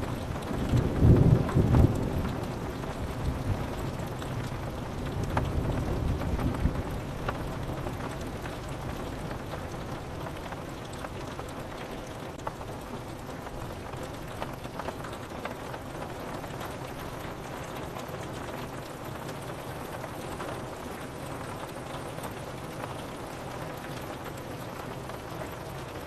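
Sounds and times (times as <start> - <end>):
thunder rumble: 0.0 - 4.0
rain on window glass: 0.0 - 26.0.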